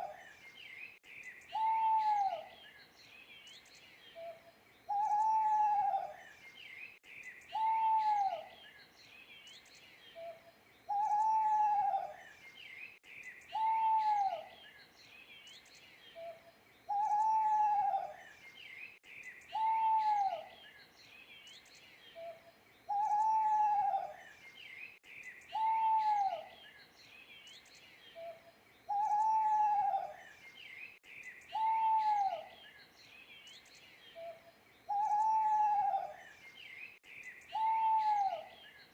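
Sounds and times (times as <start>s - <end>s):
small birds chirping: 0.0s - 38.9s
owl hooting: 1.5s - 2.5s, 4.2s - 6.2s, 7.5s - 8.5s, 10.2s - 12.2s, 13.5s - 14.5s, 16.2s - 18.2s, 19.5s - 20.5s, 22.2s - 24.2s, 25.5s - 26.5s, 28.2s - 30.2s, 31.5s - 32.6s, 34.2s - 36.2s, 37.5s - 38.6s.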